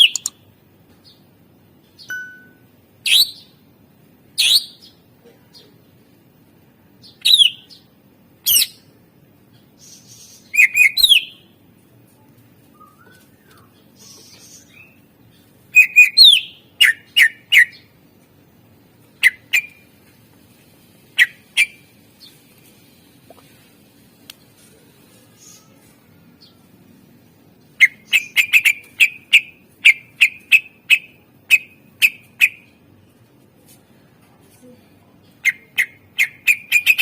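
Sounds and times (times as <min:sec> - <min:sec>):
bird singing whistled notes: 0:07.1 - 0:07.7, 0:10.2 - 0:11.4, 0:12.7 - 0:15.0, 0:15.7 - 0:17.9.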